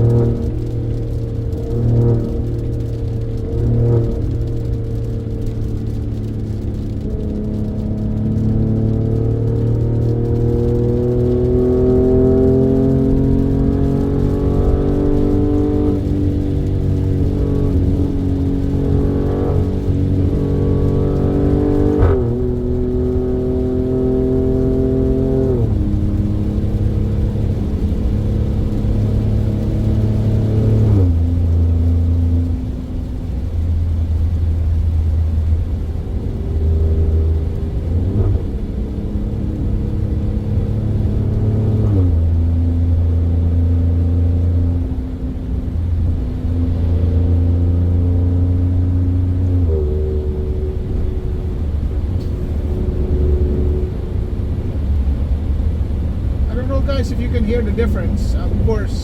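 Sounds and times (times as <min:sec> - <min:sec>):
car engine shifting gears: 0:00.0 - 0:59.0.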